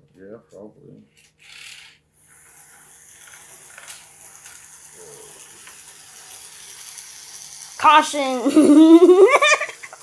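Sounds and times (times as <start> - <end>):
toy electric trains whirring: 1.2 - 10.0
wheels clicking on rails: 3.7 - 8.2.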